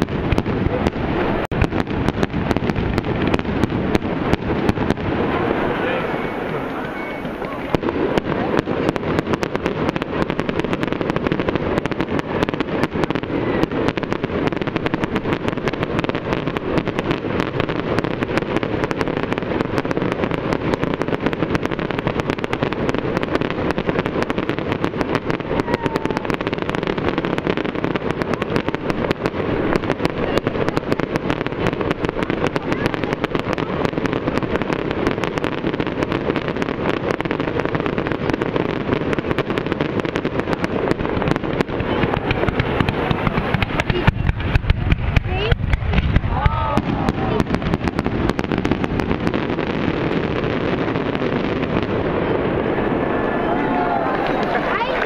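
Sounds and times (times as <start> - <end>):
fireworks crackling and banging: 0.0 - 55.0.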